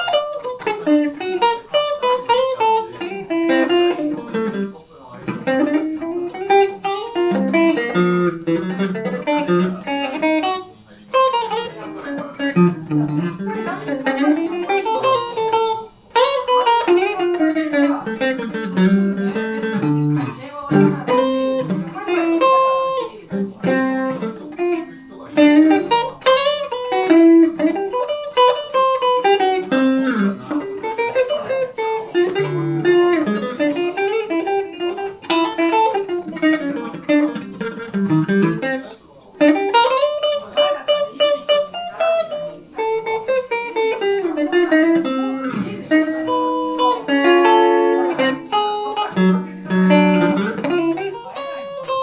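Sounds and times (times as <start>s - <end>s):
electric guitar melody: 0.0s - 52.0s.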